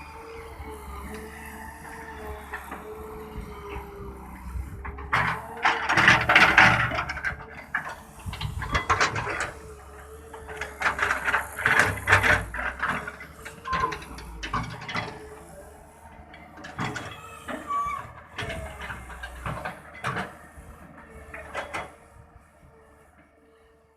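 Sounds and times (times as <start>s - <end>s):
excavator engine running: 0.0s - 23.9s
metallic clanks and knocks: 5.1s - 9.6s
short high squeals: 17.1s - 18.1s.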